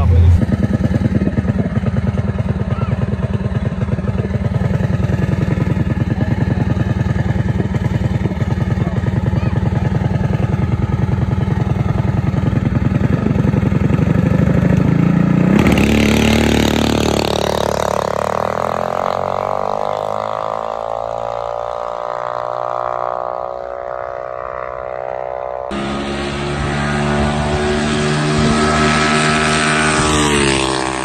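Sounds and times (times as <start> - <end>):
minibike engine running: 0.0 - 23.9.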